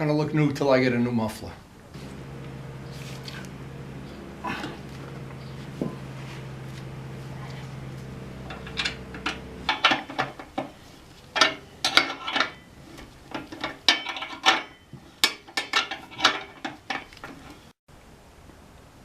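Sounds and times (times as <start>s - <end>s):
steady low hum: 1.6s - 14.8s
metal tools clinking: 2.0s - 17.7s.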